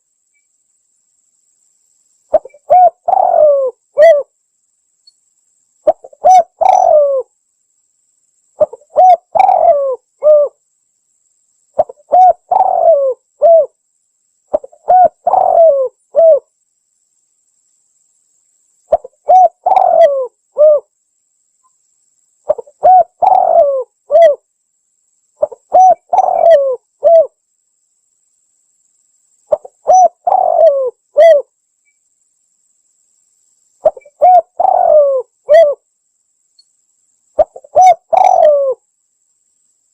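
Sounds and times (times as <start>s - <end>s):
dove cooing: 2.3s - 4.3s, 5.9s - 7.3s, 8.6s - 10.6s, 11.8s - 13.8s, 14.5s - 16.4s, 18.9s - 20.9s, 22.5s - 24.4s, 25.4s - 27.4s, 29.5s - 31.5s, 33.8s - 35.8s, 37.4s - 38.8s.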